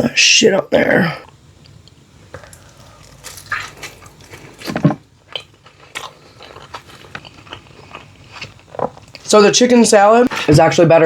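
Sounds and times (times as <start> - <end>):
person chewing food: 1.3 - 9.3.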